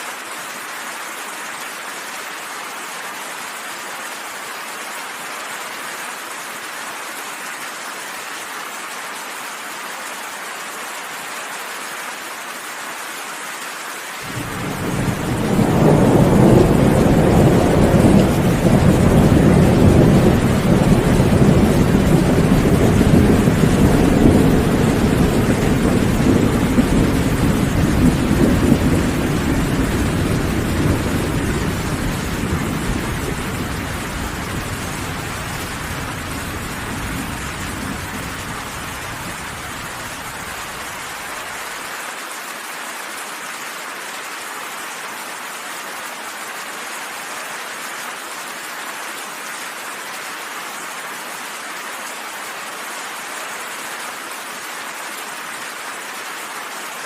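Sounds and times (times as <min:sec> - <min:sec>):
steady rain: 0:00.0 - 0:57.0
rolling thunder rumble: 0:14.3 - 0:41.0.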